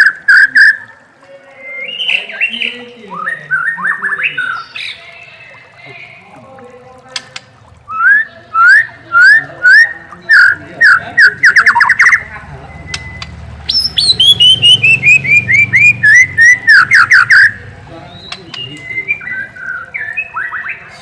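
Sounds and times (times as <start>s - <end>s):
songbird singing whistled notes: 1.6s - 5.0s, 7.9s - 21.0s.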